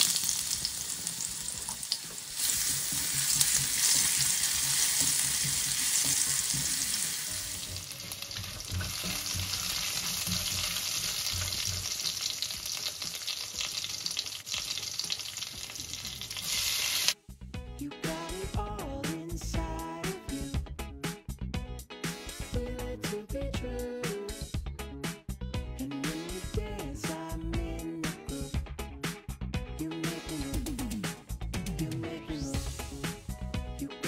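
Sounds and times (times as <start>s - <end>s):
spices sizzling in hot oil: 0.0s - 17.2s.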